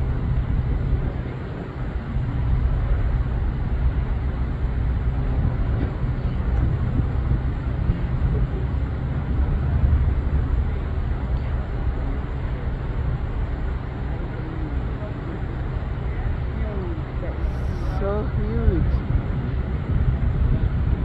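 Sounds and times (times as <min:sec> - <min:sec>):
low mechanical rumble: 0:00.0 - 0:21.0.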